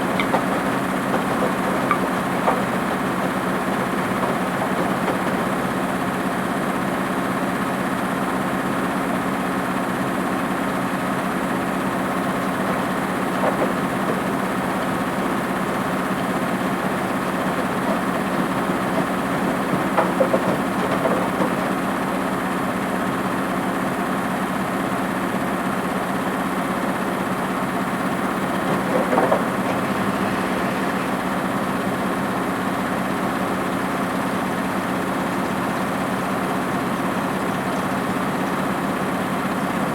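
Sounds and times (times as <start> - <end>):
washing machine rattles: 0.0 - 6.0, 11.9 - 22.5
washing machine motor hum: 0.0 - 39.9.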